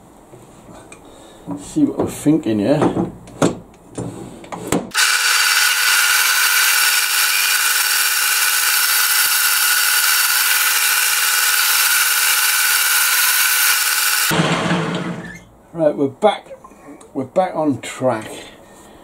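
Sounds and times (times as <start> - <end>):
machine motor whining: 4.9 - 15.1.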